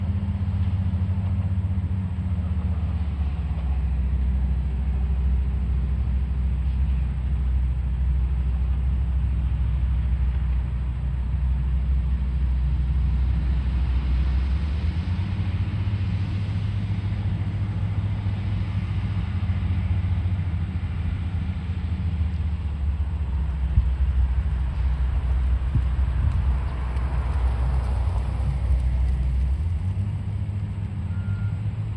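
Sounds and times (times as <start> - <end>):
diesel engine rumbling: 0.0 - 31.9.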